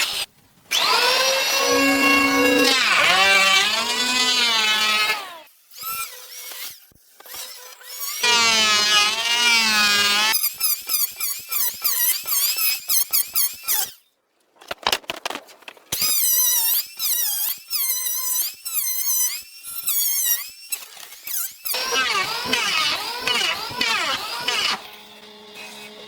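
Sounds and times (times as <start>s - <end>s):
high-pitched squeaking: 1.3s - 3.1s.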